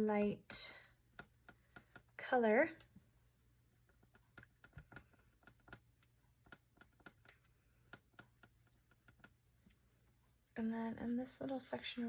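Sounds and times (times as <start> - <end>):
paintbrush tapping on palette: 3.9 - 9.4.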